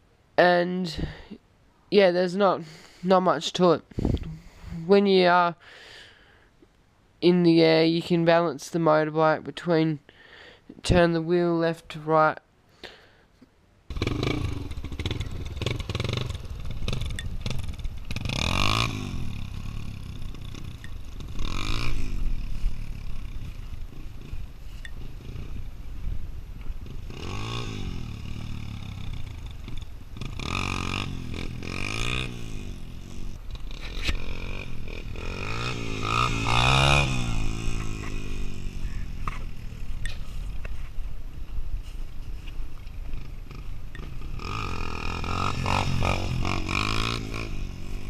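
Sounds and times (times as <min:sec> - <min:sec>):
motorcycle engine revving: 0:13.9 - 0:40.6, 0:43.0 - 0:48.0.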